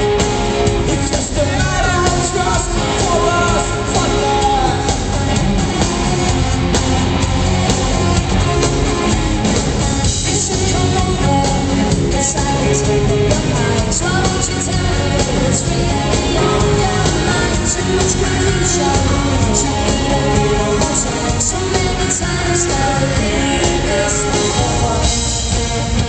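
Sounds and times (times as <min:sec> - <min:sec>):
drums keeping steady beat: 0:00.0 - 0:26.0
live rock band playing: 0:00.0 - 0:26.0
woman singing: 0:10.2 - 0:25.3.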